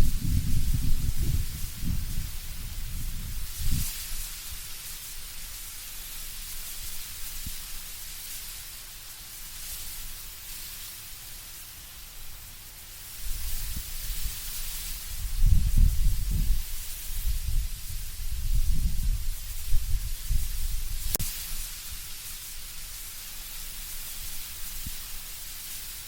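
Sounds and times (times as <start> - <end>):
low rumbling wind gusts: 0.0 - 3.9, 15.0 - 21.2
wind through rustling leaves: 0.0 - 26.0.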